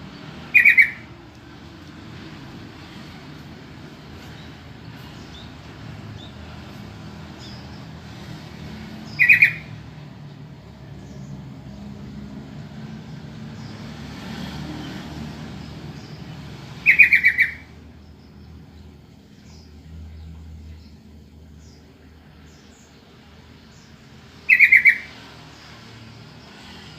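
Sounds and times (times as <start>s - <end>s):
bird chattering calls: 0.4s - 1.1s, 9.0s - 9.8s, 16.8s - 17.7s, 24.4s - 25.2s.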